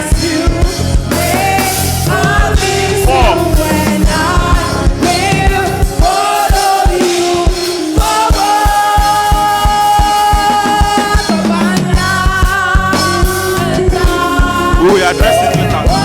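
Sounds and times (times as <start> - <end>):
choir singing held chords: 0.0 - 10.0, 11.4 - 16.0
kick drum beat: 3.1 - 4.2.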